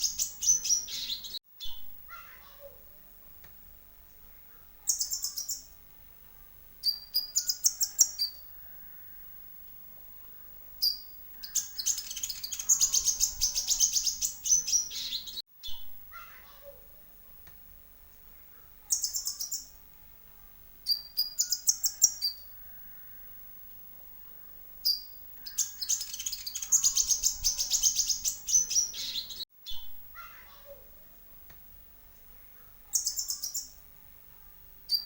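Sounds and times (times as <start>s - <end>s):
bird twittering trills: 0.0s - 1.9s, 4.8s - 5.8s, 6.8s - 9.1s, 10.8s - 15.8s, 18.9s - 19.8s, 20.9s - 23.0s, 24.8s - 29.9s, 32.9s - 33.8s.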